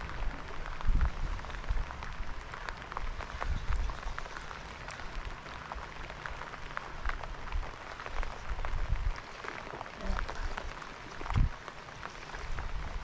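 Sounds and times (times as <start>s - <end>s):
low wind rumble: 0.0s - 13.0s
rain falling: 0.0s - 13.0s
raindrops ticking close by: 0.0s - 13.0s.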